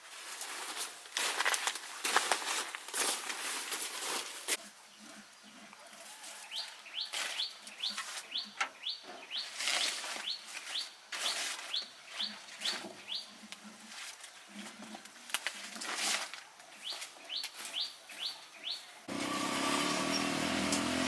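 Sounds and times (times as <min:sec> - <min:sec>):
bird chirping: 0:06.5 - 0:13.4, 0:16.7 - 0:19.1.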